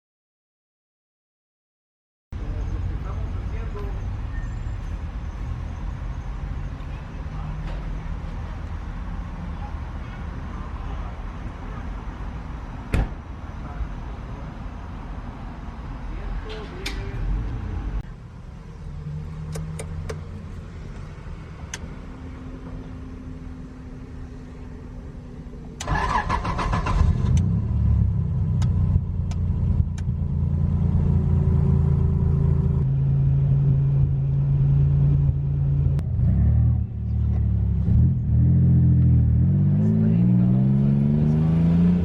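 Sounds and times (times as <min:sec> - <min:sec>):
car engine revving: 0:25.8 - 0:42.0.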